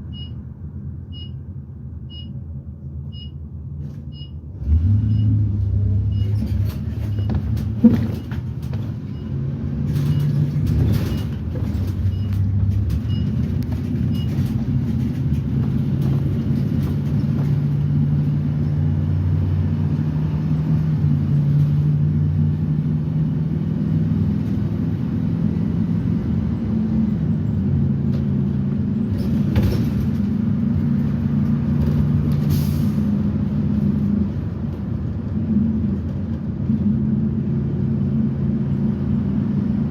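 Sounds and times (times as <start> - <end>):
bus engine running: 0.0 - 39.9
road rumble: 0.0 - 39.9
knocks and rattles: 6.4 - 9.2, 9.8 - 17.9.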